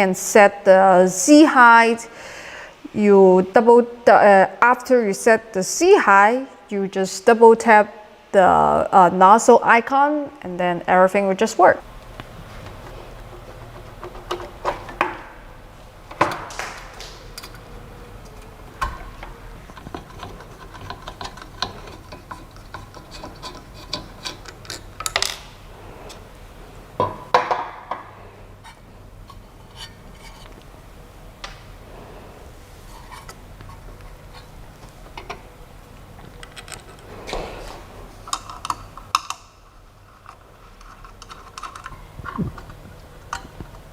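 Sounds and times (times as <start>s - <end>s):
steady low hum: 0.0s - 43.9s
small hard parts clicking and clinking: 16.2s - 25.5s, 38.3s - 43.8s.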